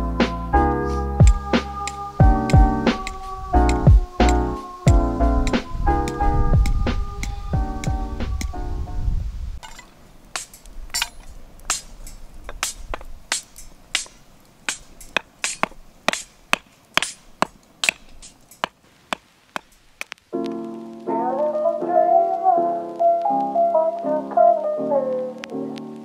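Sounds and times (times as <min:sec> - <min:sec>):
background music: 0:00.0 - 0:09.2, 0:20.3 - 0:26.0
wood fire crackling: 0:00.0 - 0:24.3, 0:25.3 - 0:26.0.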